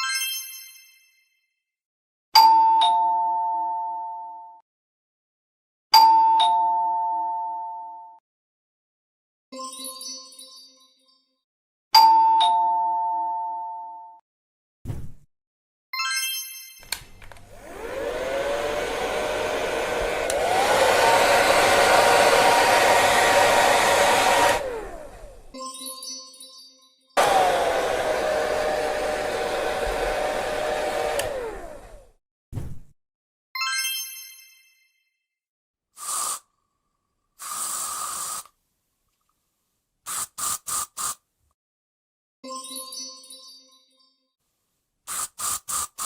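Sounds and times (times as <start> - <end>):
hair dryer motor whine: 17.2 - 25.6, 27.2 - 32.2
hissing bursts: 36.0 - 36.4, 37.4 - 38.5.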